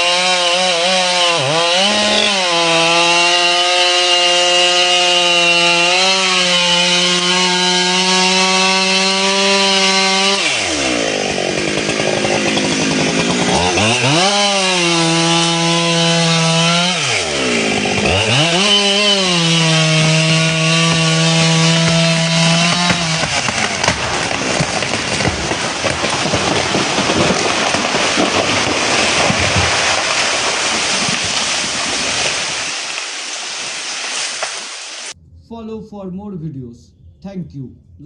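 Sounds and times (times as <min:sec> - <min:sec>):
chainsaw engine revving: 0:00.0 - 0:32.9.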